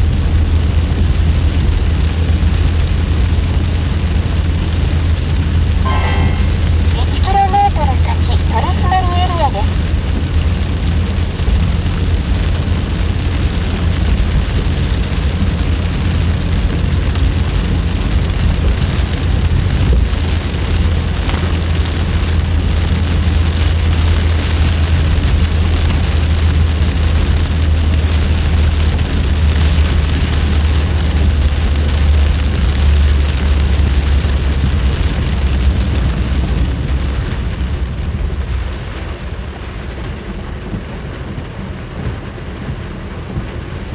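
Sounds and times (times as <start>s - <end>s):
car engine and road rumble: 0.0s - 43.9s
heavy rain hissing: 0.1s - 39.3s.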